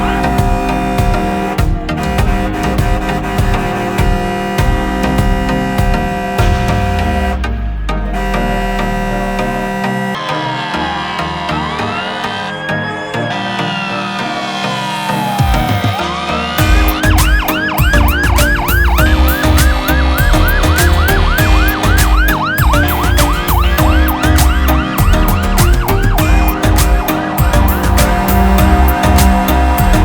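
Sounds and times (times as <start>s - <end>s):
music with heavy beat: 0.0s - 30.0s
rapid yelping siren: 8.9s - 30.0s.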